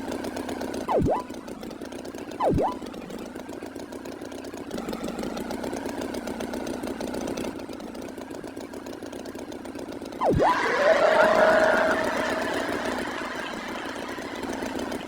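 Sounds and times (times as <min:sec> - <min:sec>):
cartoon tractor engine running: 0:00.0 - 0:15.0
pitch swoop sound effect: 0:10.2 - 0:15.0.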